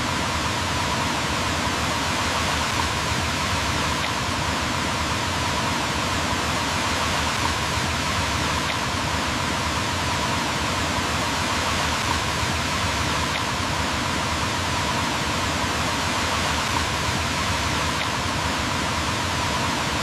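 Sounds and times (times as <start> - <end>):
rushing water: 0.0 - 20.0.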